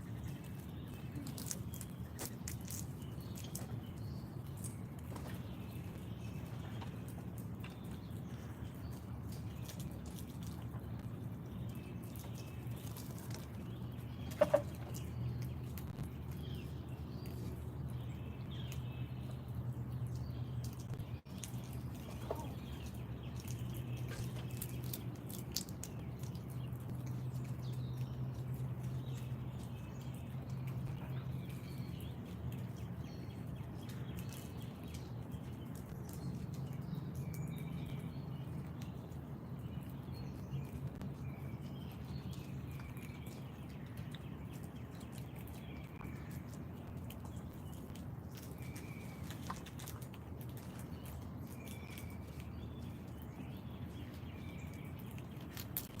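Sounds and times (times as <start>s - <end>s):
steady low hum: 0.0s - 56.0s
wild birds chirping: 0.0s - 56.0s.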